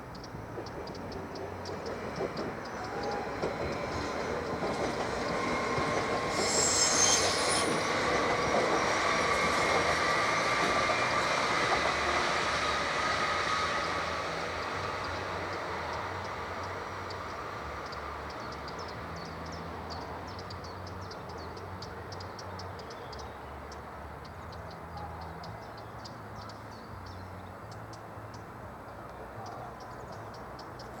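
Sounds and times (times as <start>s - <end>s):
diesel locomotive rumbling: 0.0s - 31.0s.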